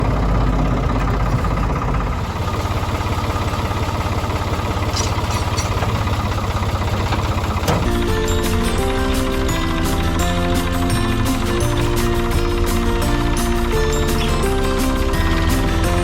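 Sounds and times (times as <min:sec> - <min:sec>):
backhoe engine idling: 0:00.0 - 0:16.0
music: 0:07.7 - 0:16.0.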